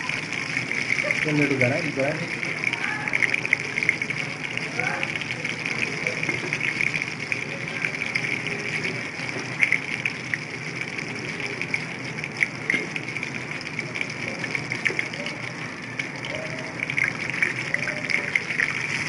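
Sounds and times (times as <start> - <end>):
deep-frying oil sizzle: 0.0 - 19.0.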